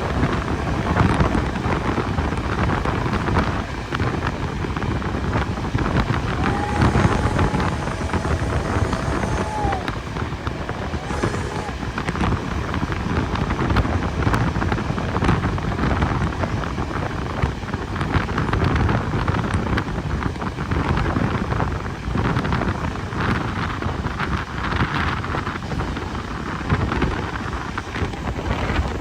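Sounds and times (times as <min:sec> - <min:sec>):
steam train running: 0:00.0 - 0:29.0
wind on microphone: 0:00.0 - 0:29.0.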